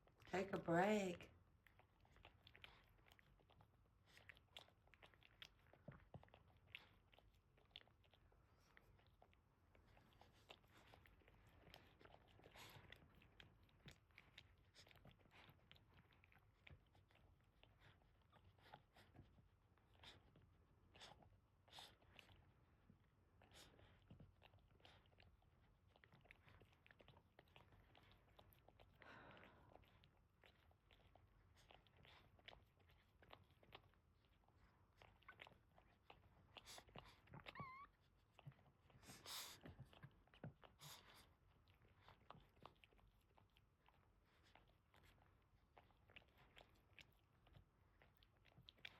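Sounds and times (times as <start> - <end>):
dog licking puppies: 0.0 - 48.9
puppy squeaking: 37.4 - 38.0.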